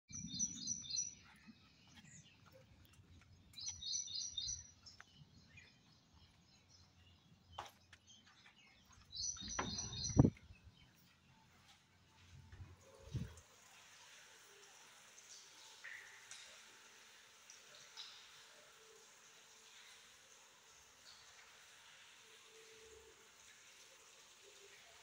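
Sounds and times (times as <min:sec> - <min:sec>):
songbird singing: 0:00.1 - 0:11.7.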